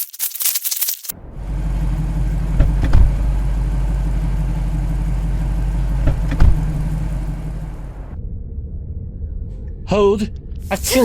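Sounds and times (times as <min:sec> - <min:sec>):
loud low rumble: 0:01.1 - 0:11.0
heavy thuds: 0:02.4 - 0:04.0, 0:04.6 - 0:08.0.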